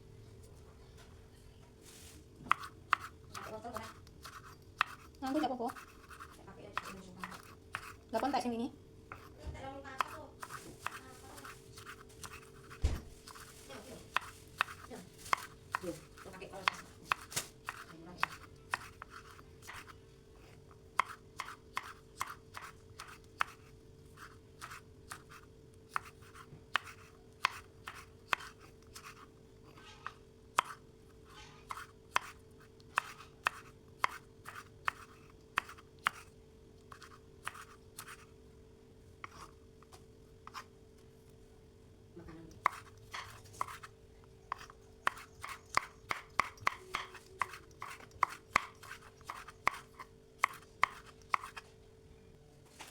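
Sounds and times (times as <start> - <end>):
faint steady hum: 0.0 - 52.9
knife chopping on cutting board: 2.4 - 8.4, 9.1 - 9.4, 10.0 - 13.5, 14.1 - 20.0, 21.0 - 29.2, 30.6 - 30.8, 31.6 - 36.3, 36.9 - 38.2, 39.2 - 39.5, 42.6 - 43.9, 44.5 - 51.6.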